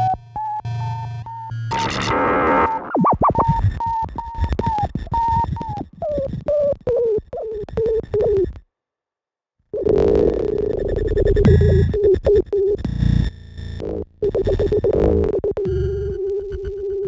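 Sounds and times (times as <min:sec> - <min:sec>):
stuttering synth tone: 0:01.7 - 0:05.5.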